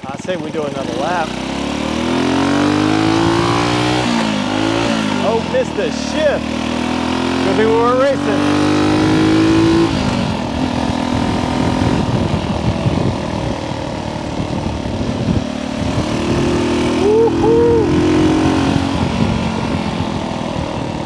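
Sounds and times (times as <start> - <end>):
motorcycle engine accelerating: 0.0 - 21.0
rushing wind: 1.2 - 21.0.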